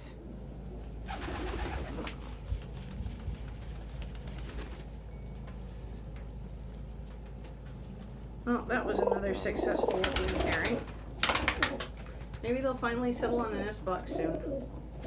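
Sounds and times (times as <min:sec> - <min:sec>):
low steady hum: 0:00.0 - 0:15.0
pigeons cooing: 0:00.5 - 0:02.4, 0:07.7 - 0:12.4, 0:13.3 - 0:15.0.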